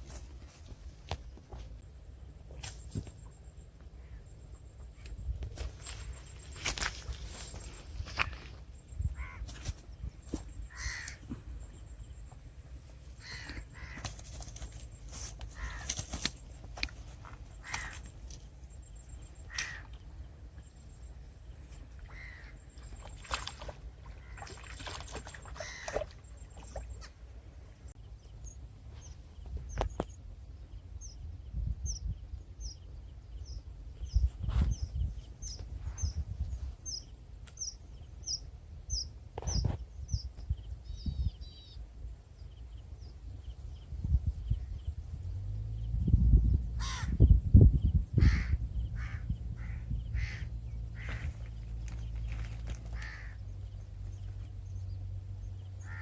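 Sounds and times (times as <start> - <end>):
crow cawing: 9.2 - 9.4, 10.7 - 11.4, 13.2 - 14.1, 15.6 - 16.0, 17.6 - 18.1, 19.5 - 19.9, 22.1 - 22.6, 25.6 - 26.0, 46.8 - 47.2, 48.2 - 51.4, 52.9 - 53.4, 55.8 - 56.0.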